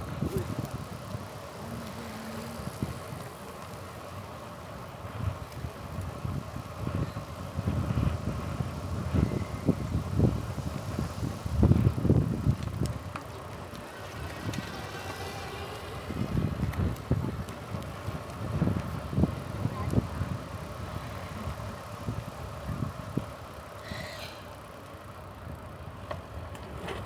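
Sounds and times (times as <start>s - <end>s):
wind buffeting microphone: 4.9s - 24.6s.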